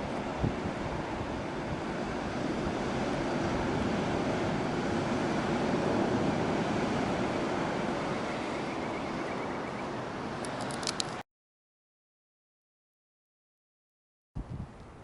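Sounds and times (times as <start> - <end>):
seaside rushing noise: 0.0 - 11.2
sharp clicks: 10.4 - 11.2.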